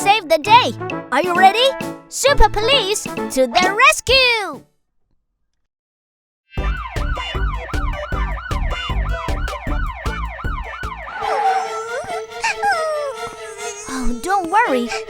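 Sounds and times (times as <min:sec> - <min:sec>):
cartoon police siren: 0:06.6 - 0:14.1.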